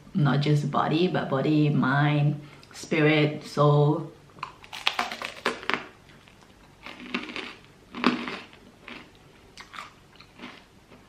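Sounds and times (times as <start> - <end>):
person sipping and chewing: 4.4 - 11.0.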